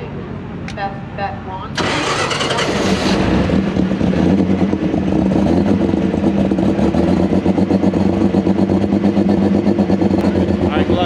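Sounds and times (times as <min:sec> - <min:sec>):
tractor diesel engine idling: 0:01.8 - 0:04.1, 0:09.4 - 0:11.0.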